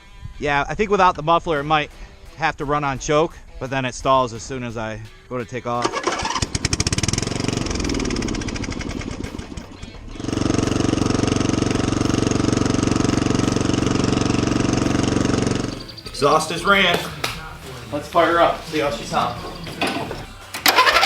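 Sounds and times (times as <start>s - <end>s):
mower engine running without muffler: 5.8s - 16.4s, 17.8s - 21.0s.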